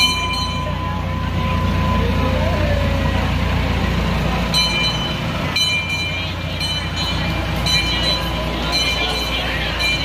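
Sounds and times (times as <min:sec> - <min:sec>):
small train rumbling past: 0:00.0 - 0:10.0.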